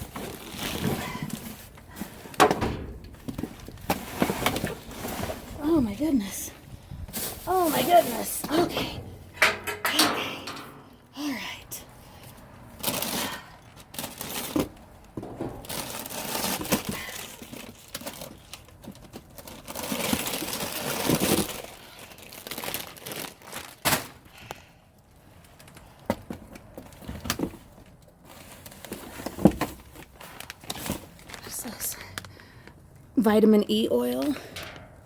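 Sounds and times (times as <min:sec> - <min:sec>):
plastic bags crinkling: 0:00.0 - 0:02.4, 0:12.8 - 0:23.8.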